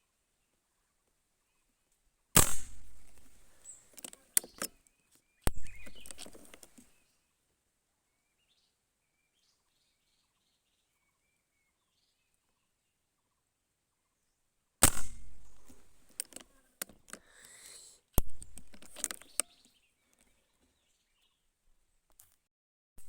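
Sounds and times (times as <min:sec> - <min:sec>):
gunshots: 0:02.4 - 0:03.5, 0:14.8 - 0:16.0
small clicks: 0:02.4 - 0:06.9, 0:14.8 - 0:20.3
faint bird chirps: 0:03.5 - 0:07.4, 0:08.0 - 0:14.4.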